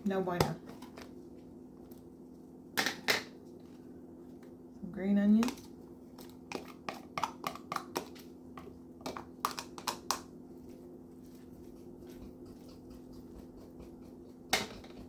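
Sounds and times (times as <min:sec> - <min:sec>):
steady low hum: 0:00.0 - 0:15.0
spoon tapping and scraping containers: 0:05.4 - 0:10.3.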